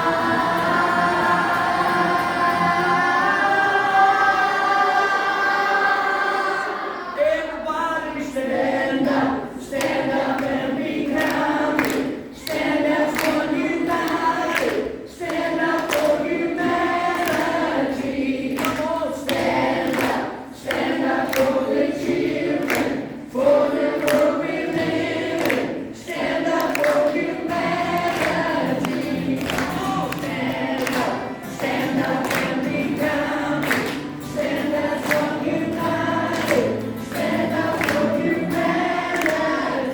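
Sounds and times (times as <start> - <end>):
group of voices singing in chorus: 0.0 - 39.9.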